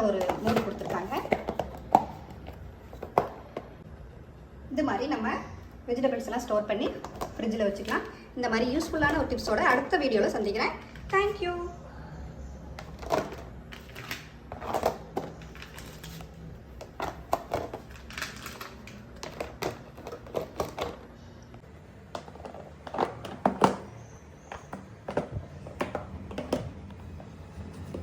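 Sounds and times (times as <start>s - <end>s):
objects clicking and knocking: 0.0s - 3.8s, 12.8s - 21.1s.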